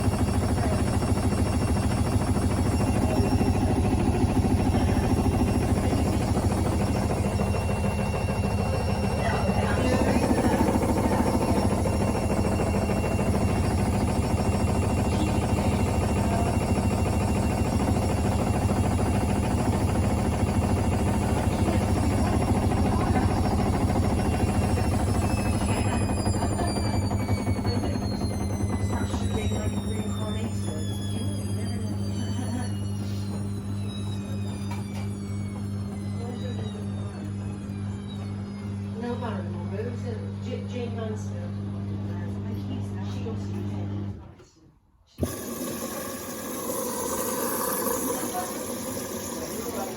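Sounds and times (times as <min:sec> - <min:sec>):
washing machine humming: 0:00.0 - 0:44.4, 0:45.0 - 0:49.9.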